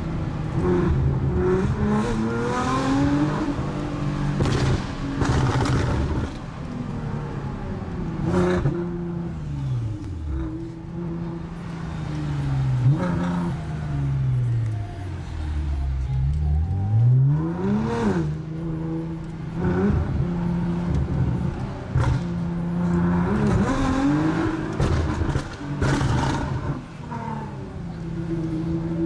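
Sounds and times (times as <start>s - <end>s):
car engine revving: 15.4s - 29.0s.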